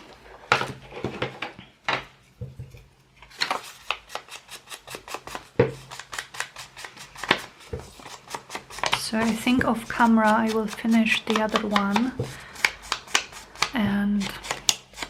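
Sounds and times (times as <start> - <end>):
ink pad rubbing paper edges: 4.6 - 13.8.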